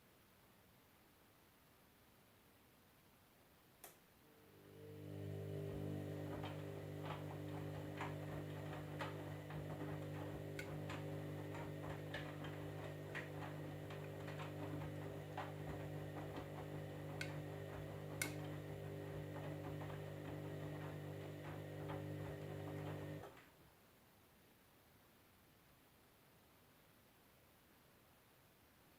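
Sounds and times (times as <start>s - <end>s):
washing machine humming: 4.3s - 23.4s.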